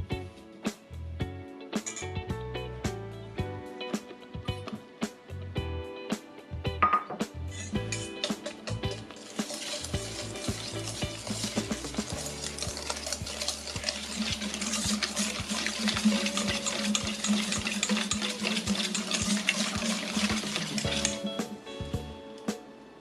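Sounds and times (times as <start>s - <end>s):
soft background music: 0.0s - 23.0s
utensil clicking against bowl: 10.5s - 21.2s.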